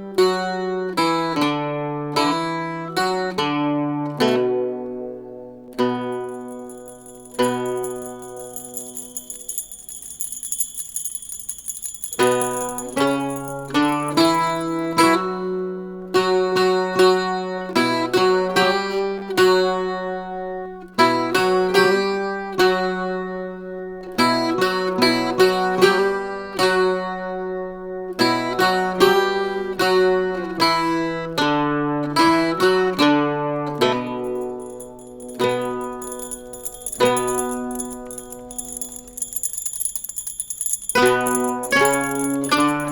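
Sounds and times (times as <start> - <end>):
high shimmer: 34.2 - 42.9.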